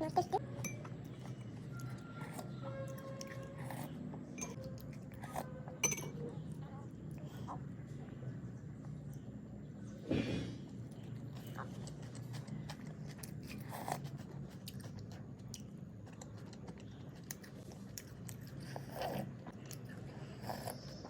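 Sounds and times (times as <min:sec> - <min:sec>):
person chewing: 0:10.7 - 0:21.0.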